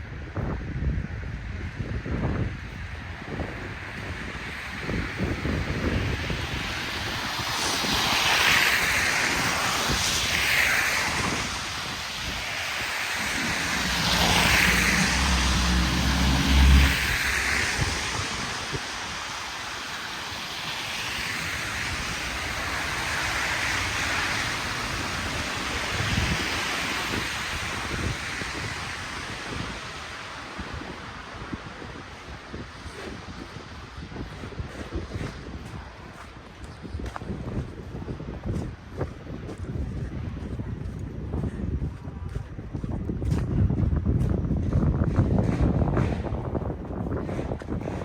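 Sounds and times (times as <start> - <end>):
car tyres swishing on slush: 3.0 - 40.1
heavy vehicle engine rumbling: 11.5 - 30.8.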